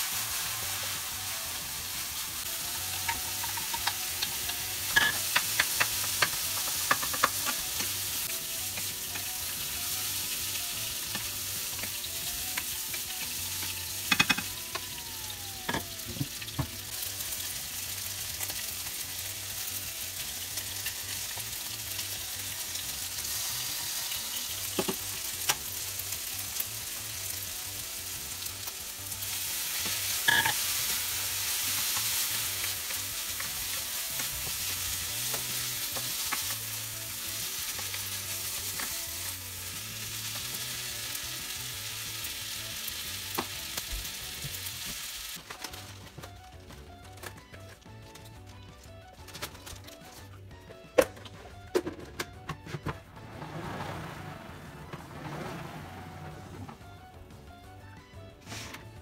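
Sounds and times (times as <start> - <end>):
food sizzling in frying pan: 0.0 - 45.9
spatula clicking and scraping pan: 2.9 - 7.9.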